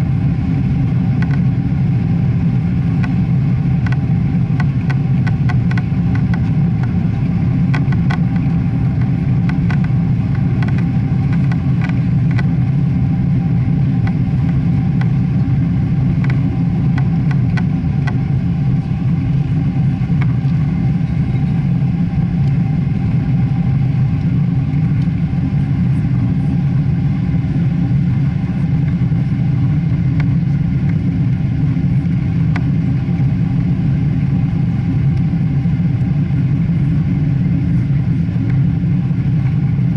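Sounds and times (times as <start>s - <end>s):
jet engine rumble: 0.0s - 39.9s.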